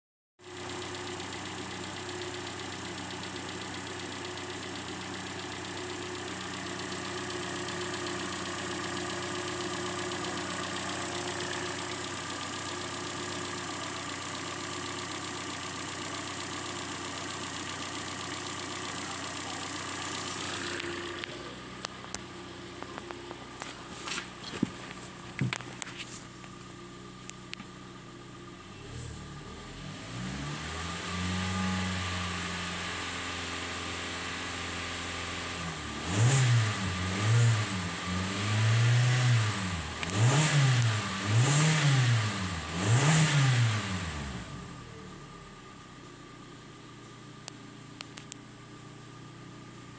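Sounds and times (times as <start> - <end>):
car engine idling: 0.4 - 30.7, 39.1 - 49.9.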